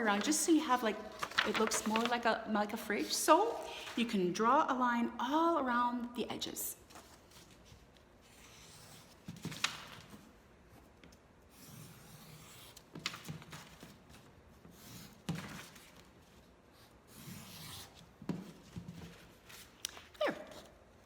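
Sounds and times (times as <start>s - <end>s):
paper being handled: 0.0s - 2.3s, 6.8s - 8.1s.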